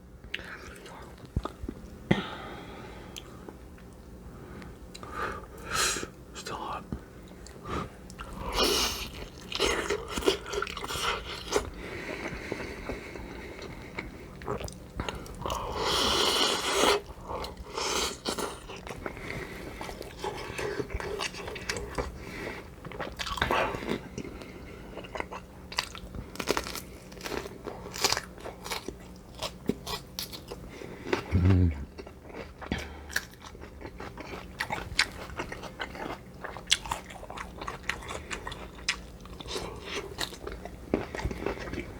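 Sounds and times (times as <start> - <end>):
crunchy bites and chewing: 25.0 - 41.9.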